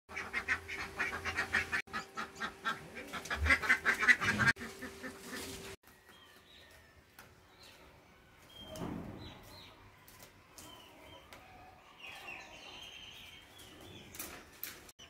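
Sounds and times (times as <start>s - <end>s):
rapid honking bird calls: 0.1s - 5.6s.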